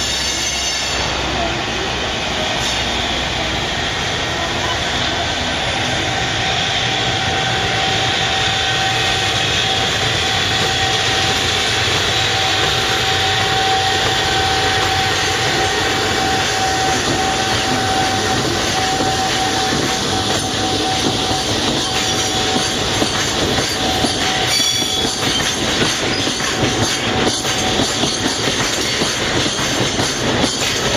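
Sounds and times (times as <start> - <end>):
high wheel squeal: 0.0 - 1.3, 2.4 - 30.9
freight train wagons rumbling: 0.0 - 30.9.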